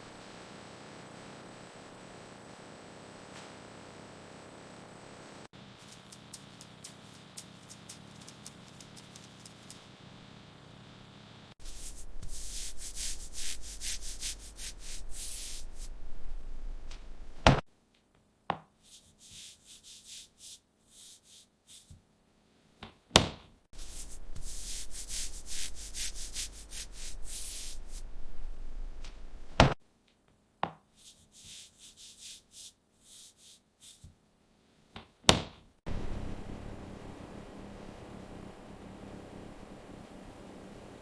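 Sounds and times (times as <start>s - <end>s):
steady hiss: 5.5s - 17.6s, 23.8s - 29.8s, 31.0s - 34.1s.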